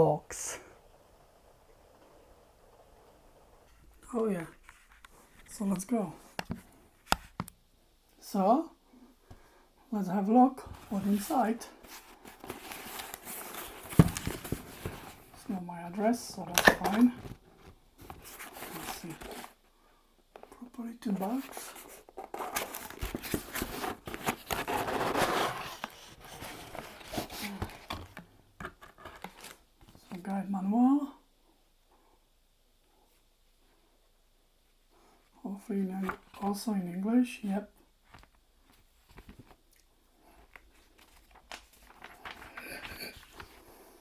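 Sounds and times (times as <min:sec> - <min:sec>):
plastic bags rustling: 0:10.7 - 0:19.6, 0:21.2 - 0:29.8, 0:38.9 - 0:44.0
small scrapes and knocks: 0:21.4 - 0:30.0.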